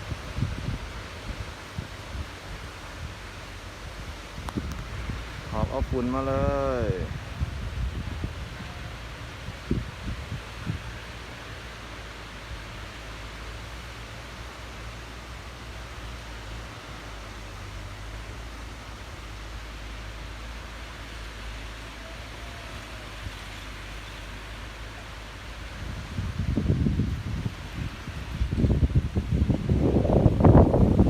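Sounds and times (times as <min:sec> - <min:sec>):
strong wind rushing: 0:00.0 - 0:11.1, 0:25.4 - 0:31.0
wind buffeting microphone: 0:00.0 - 0:11.6, 0:25.3 - 0:31.0.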